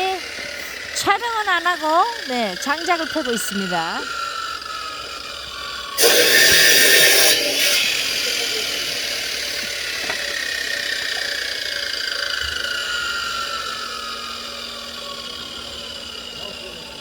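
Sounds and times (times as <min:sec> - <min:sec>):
motor engine running: 0:00.0 - 0:17.0
loud burst of noise: 0:06.0 - 0:16.0.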